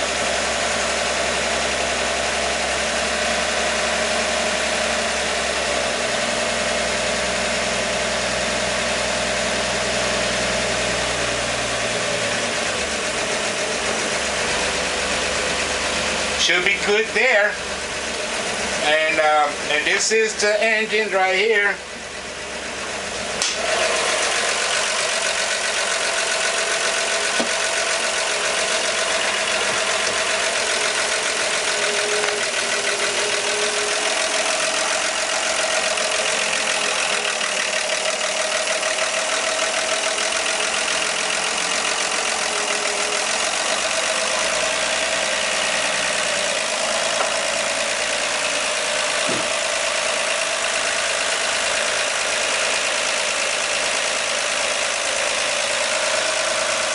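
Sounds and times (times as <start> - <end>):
truck engine idling: 0.0 - 56.9.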